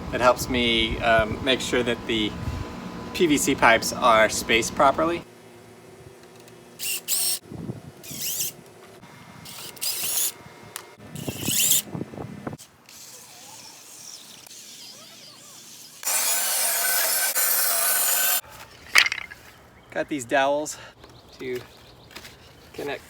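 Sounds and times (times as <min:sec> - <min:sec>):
power drill running: 0:15.8 - 0:18.4.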